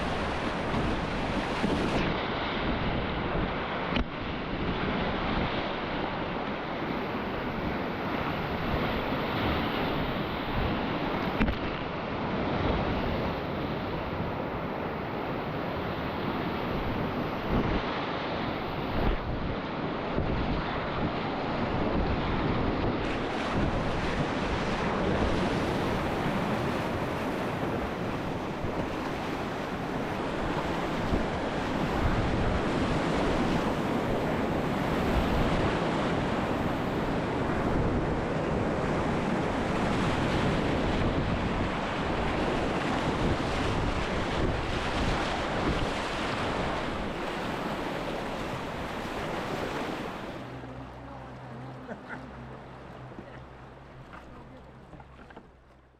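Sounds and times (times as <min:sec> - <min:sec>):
whitewater rushing: 0:41.2 - 0:55.5.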